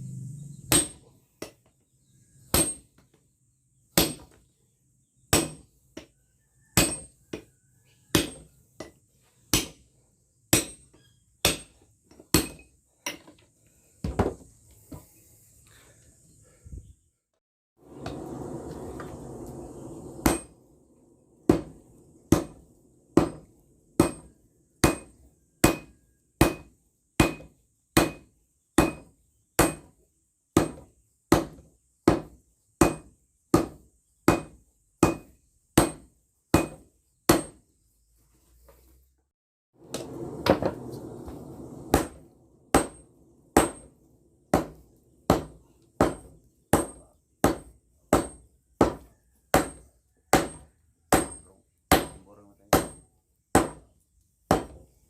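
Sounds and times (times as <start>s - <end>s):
hammer striking steel on anvil: 0.7s - 1.6s, 5.3s - 5.6s, 6.8s - 7.5s, 8.1s - 9.8s, 10.5s - 13.3s, 18.0s - 20.6s, 21.4s - 29.9s, 30.6s - 37.6s, 41.7s - 53.8s.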